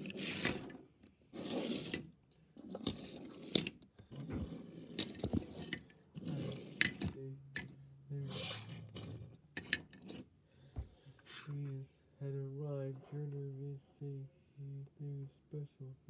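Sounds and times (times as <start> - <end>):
toy cars clicking: 0.0 - 0.8, 1.4 - 10.3
toy cars scraping and rustling: 0.0 - 10.3.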